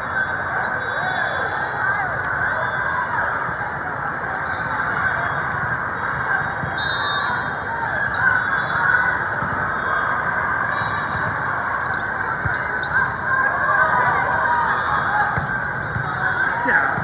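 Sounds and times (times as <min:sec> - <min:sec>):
shoes squeaking on court: 0:11.1 - 0:17.0
overlapping voices: 0:16.5 - 0:17.0.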